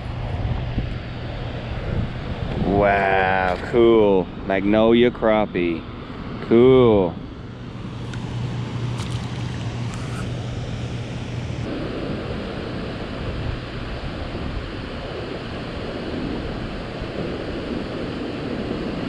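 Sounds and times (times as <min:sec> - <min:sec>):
low steady hum: 0:00.0 - 0:19.0
wind rushing over microphone: 0:00.0 - 0:19.0
choppy water around kayak: 0:08.9 - 0:10.3.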